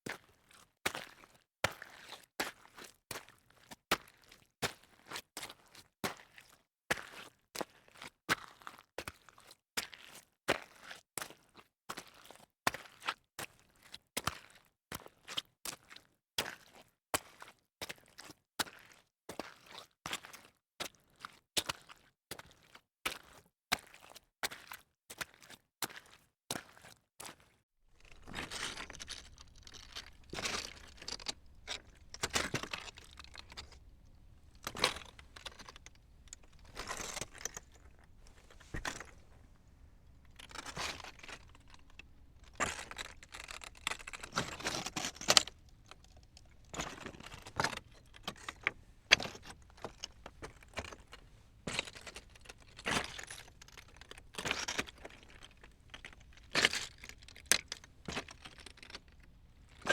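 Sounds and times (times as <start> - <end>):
clinks and rattles: 28.0 - 59.9.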